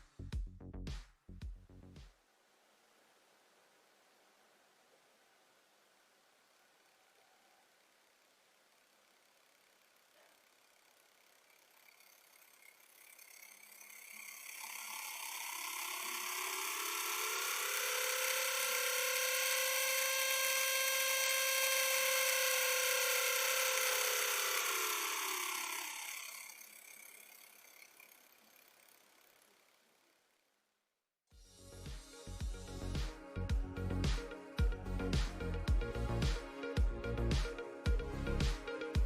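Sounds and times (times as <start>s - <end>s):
small electric motor whining: 6.4s - 30.5s, 33.8s - 39.0s.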